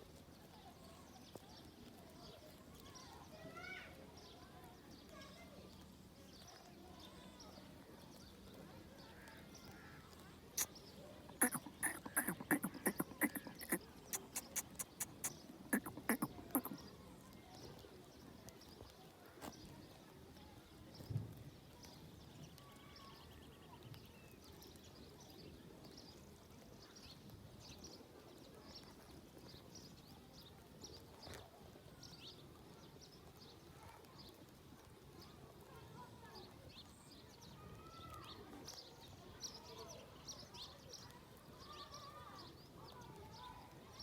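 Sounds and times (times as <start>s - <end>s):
goats cropping grass clicks: 10.6s - 16.8s
faint bird chirps: 10.6s - 17.0s.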